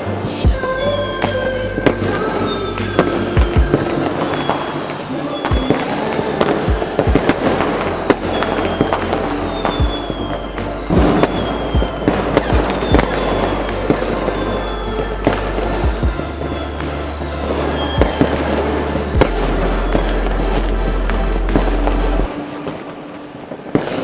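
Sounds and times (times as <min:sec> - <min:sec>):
background music with bass: 0:00.0 - 0:22.9
fireworks bangs and crackles: 0:01.2 - 0:14.5, 0:16.8 - 0:20.7.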